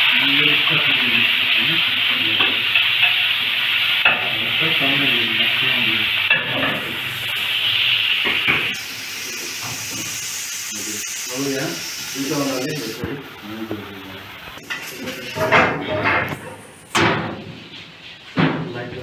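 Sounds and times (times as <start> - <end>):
meat sizzling in a grill pan: 0.0 - 15.6
faint high hiss: 4.0 - 15.5.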